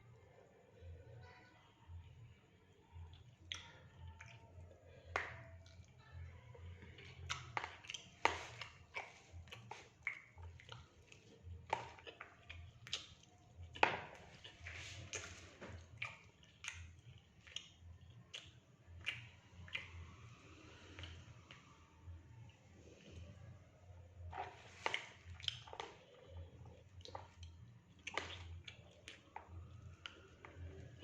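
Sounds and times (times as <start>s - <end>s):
person chewing food: 6.7s - 31.0s
wet mouth clicks and smacks: 7.0s - 21.8s, 24.3s - 31.0s.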